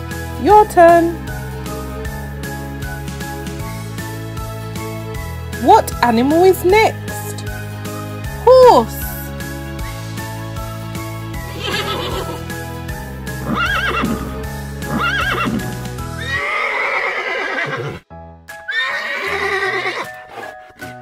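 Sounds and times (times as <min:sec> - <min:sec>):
background music: 0:00.0 - 0:21.0
horses whinnying: 0:11.5 - 0:12.5, 0:13.3 - 0:18.0, 0:18.7 - 0:20.8.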